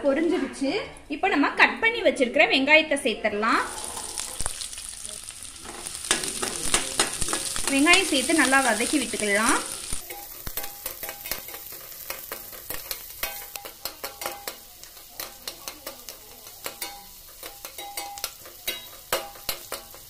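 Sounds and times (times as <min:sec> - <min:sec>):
shallots sizzling in oil: 0:03.6 - 0:20.0
metal spatula scraping pan: 0:05.6 - 0:20.0.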